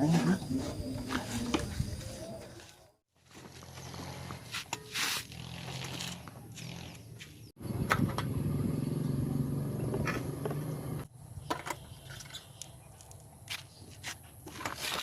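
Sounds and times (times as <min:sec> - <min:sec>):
small motorcycle engine running: 0:03.3 - 0:04.5, 0:05.3 - 0:11.1.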